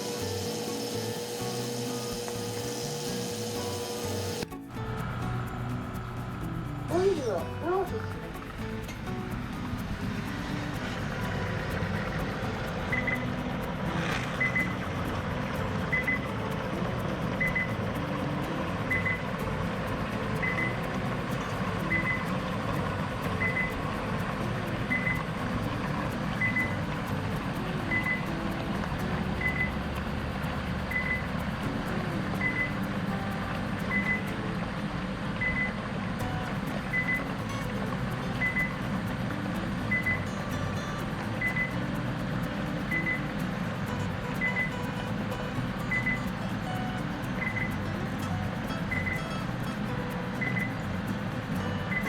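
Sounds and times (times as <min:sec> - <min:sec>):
machinery humming: 0:00.0 - 0:52.0
high double pip beeps: 0:12.9 - 0:13.7, 0:14.4 - 0:17.9, 0:18.8 - 0:19.5, 0:20.4 - 0:22.5, 0:23.3 - 0:23.8, 0:24.6 - 0:25.3, 0:26.4 - 0:28.5, 0:29.4 - 0:29.8, 0:33.9 - 0:34.3, 0:35.4 - 0:37.8, 0:38.4 - 0:38.9, 0:39.9 - 0:40.3, 0:41.4 - 0:41.8, 0:45.9 - 0:46.3, 0:47.4 - 0:47.8, 0:50.4 - 0:50.8.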